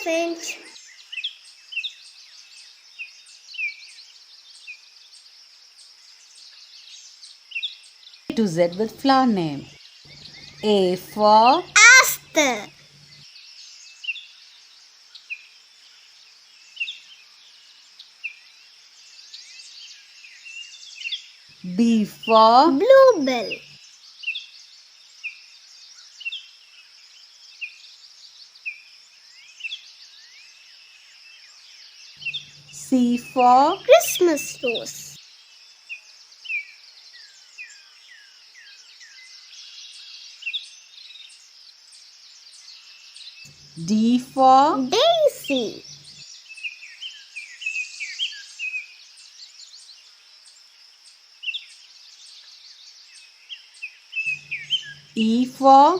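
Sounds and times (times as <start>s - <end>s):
birds chirping: 0.0s - 0.9s, 8.3s - 13.2s, 21.5s - 23.8s, 32.2s - 35.2s, 43.5s - 49.2s, 54.2s - 55.9s
faint outdoor hiss: 0.0s - 55.9s
birds chirping and trilling: 6.1s - 14.6s, 18.0s - 26.6s, 29.3s - 55.9s
bird chirping: 7.7s - 14.2s, 29.6s - 55.9s.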